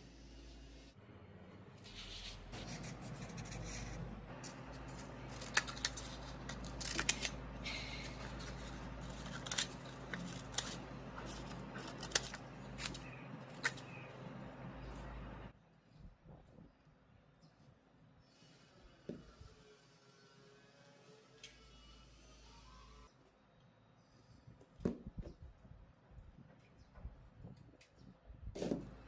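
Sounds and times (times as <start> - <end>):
paper rustling and scraping: 1.8 - 15.5.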